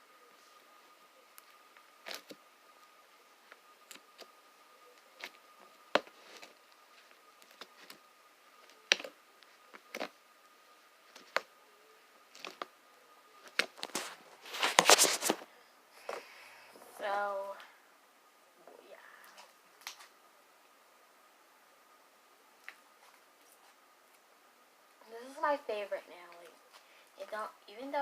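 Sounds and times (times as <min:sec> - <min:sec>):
faint steady high tone: 0:00.0 - 0:13.6, 0:15.5 - 0:19.7.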